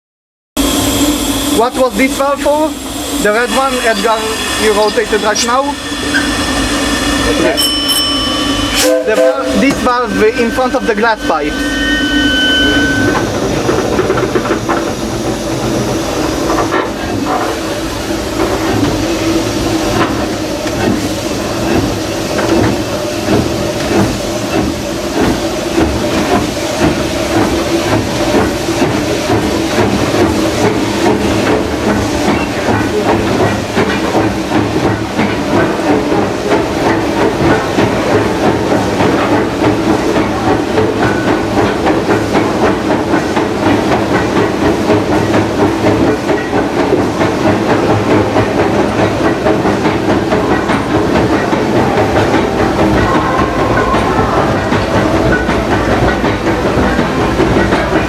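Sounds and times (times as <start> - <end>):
steam hissing: 0.6 - 46.0
locomotive engine rumble: 0.6 - 58.0.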